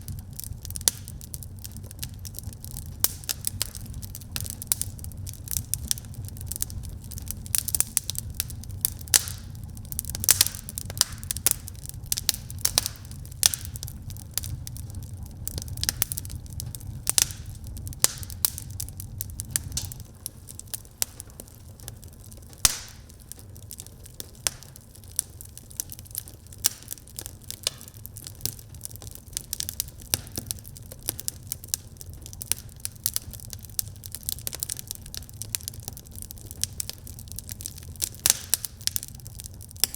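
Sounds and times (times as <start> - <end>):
low rumble: 0.0 - 20.2
wood fire crackling: 0.0 - 39.9.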